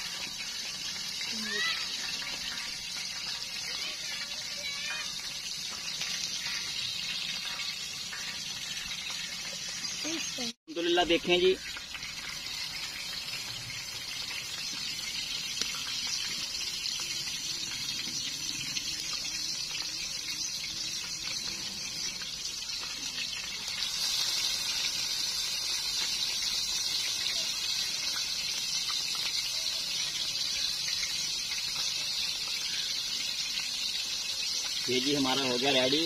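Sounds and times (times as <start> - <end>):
patties sizzling in hot oil: 0.0 - 36.0.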